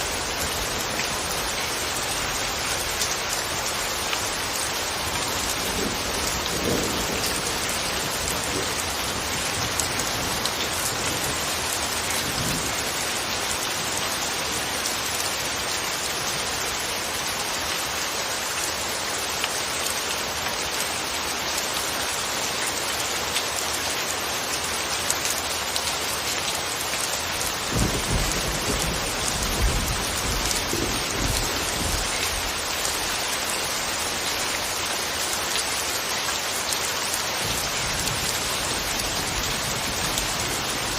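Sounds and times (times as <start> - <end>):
soft rain falling: 0.0 - 40.9
thunder rumbling: 27.7 - 32.6.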